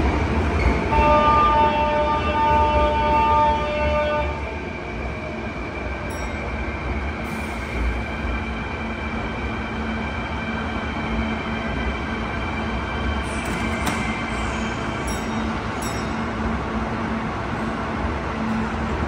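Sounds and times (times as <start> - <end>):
train wheels rumble and hiss: 4.5 - 19.0.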